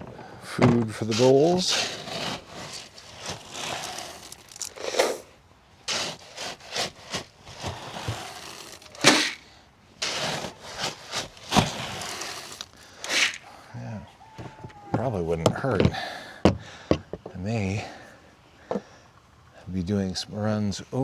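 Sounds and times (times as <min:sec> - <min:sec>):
dry feed rustling and scraping: 0:00.8 - 0:13.6.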